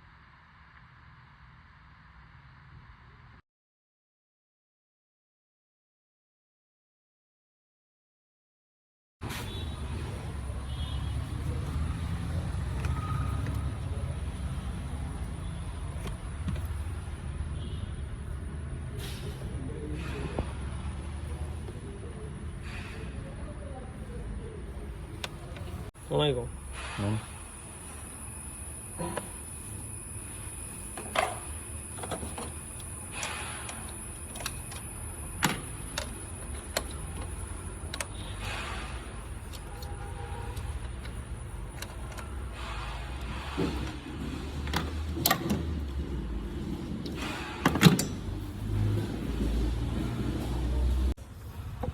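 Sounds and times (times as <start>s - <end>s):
sharp clicks and knocks of handling: 31.0s - 38.8s.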